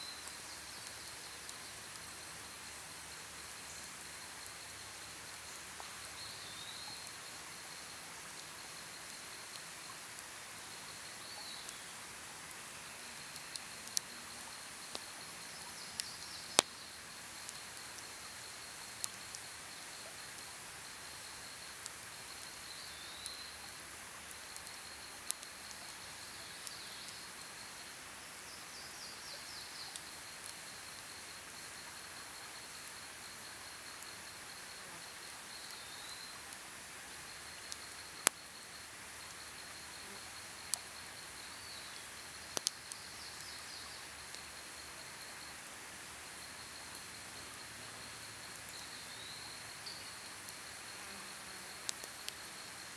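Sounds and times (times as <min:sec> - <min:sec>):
campfire crackling and popping: 0:11.6 - 0:27.2, 0:37.4 - 0:39.1, 0:42.0 - 0:44.8, 0:48.5 - 0:48.9, 0:51.8 - 0:52.6
pulsing insect trill: 0:37.3 - 0:45.6, 0:46.2 - 0:52.9.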